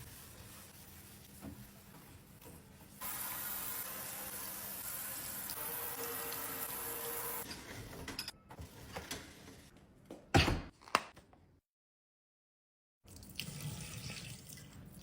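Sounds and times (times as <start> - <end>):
water running: 3.0 - 7.5.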